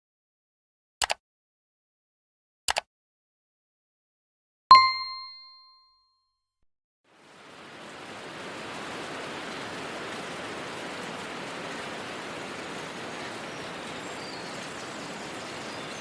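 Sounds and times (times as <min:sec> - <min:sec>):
bright ding: 0:04.7 - 0:06.0
outdoor ambience hiss: 0:07.1 - 0:16.0.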